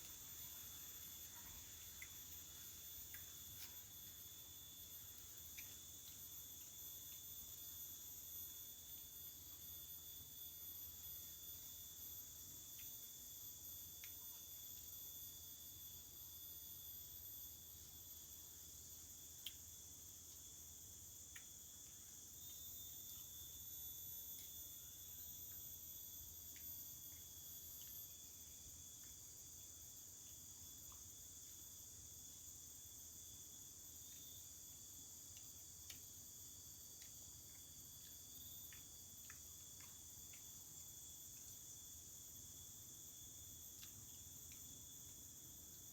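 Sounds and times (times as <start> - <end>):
crickets trilling: 0.0 - 45.9
soft ticks: 1.2 - 3.8, 5.1 - 7.3, 12.7 - 13.1, 14.0 - 14.2, 19.4 - 19.7, 21.2 - 22.1, 24.3 - 24.6, 26.4 - 28.1, 28.9 - 29.3, 35.3 - 36.2, 36.9 - 40.6, 43.8 - 45.9.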